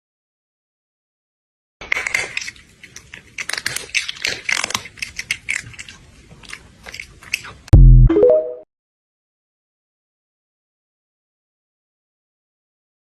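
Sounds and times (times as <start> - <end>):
crunchy chewing: 1.8 - 7.7.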